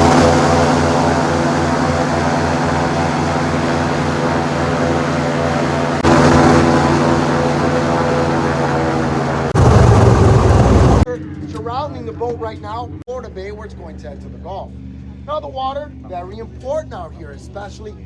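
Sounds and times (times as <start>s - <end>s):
airboat engine and propeller droning: 0.0s - 11.1s.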